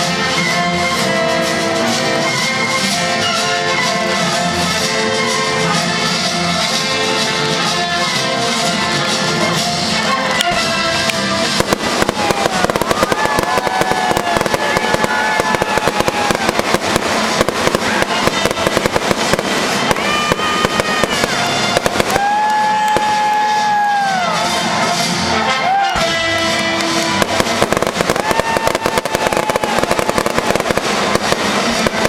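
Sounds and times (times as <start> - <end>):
fireworks crackling and popping: 0.0 - 32.0
orchestra playing: 0.0 - 32.0.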